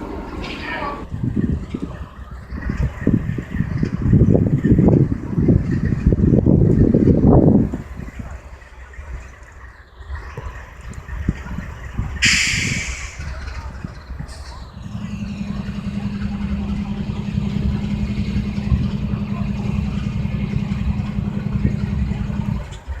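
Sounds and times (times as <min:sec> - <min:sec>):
low engine drone: 0:00.0 - 0:23.0
short burst of hiss: 0:12.2 - 0:13.4.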